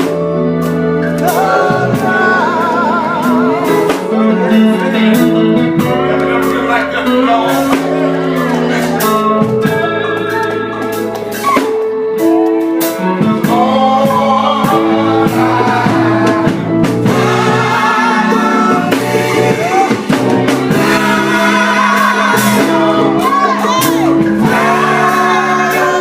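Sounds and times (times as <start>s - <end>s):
bass: 0.0s - 26.0s
drum kit hits: 0.0s - 26.0s
electric guitar: 0.0s - 26.0s
gospel group singing: 0.0s - 26.0s.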